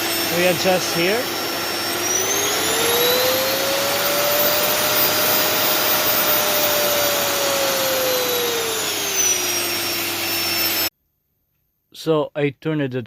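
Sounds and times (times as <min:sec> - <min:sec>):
vacuum cleaner motor whining: 0:00.0 - 0:10.9.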